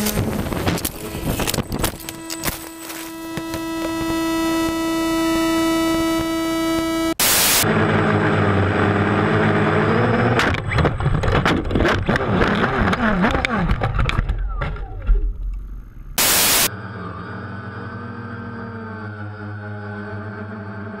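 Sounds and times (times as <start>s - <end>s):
drone motors whining: 0.0s - 21.0s
low mechanical drone: 0.0s - 21.0s
burst of noise: 0.5s - 7.7s, 16.2s - 16.7s
knocks and clatters: 10.4s - 15.2s.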